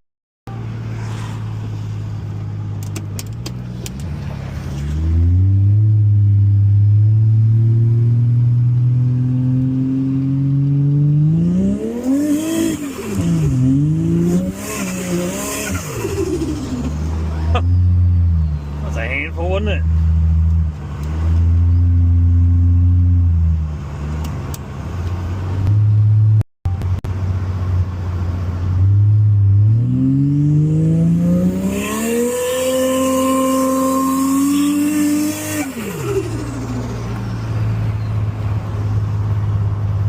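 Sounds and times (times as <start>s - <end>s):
car engine revving hard: 7.1s - 17.6s, 28.8s - 37.2s.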